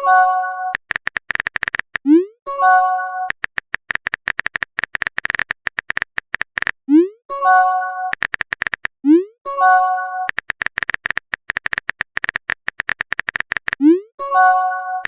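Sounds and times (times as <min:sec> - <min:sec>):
keyboard tap clicks: 0:08.1 - 0:08.9, 0:10.3 - 0:13.8.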